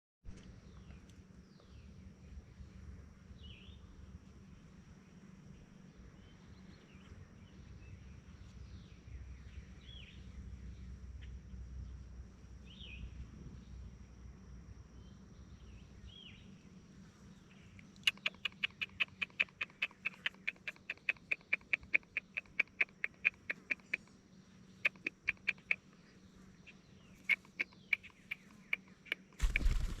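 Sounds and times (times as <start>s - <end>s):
bird chirps: 17.5s - 30.0s
sharp clicking bird calls: 17.5s - 30.0s.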